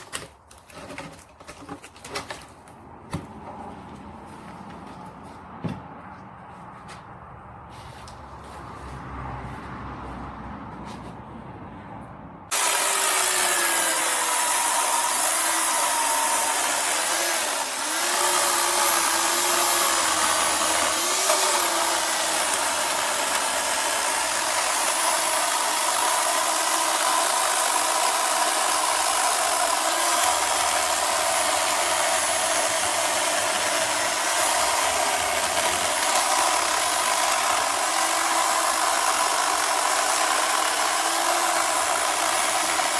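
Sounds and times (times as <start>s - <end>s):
electric chainsaw running: 12.5s - 42.9s.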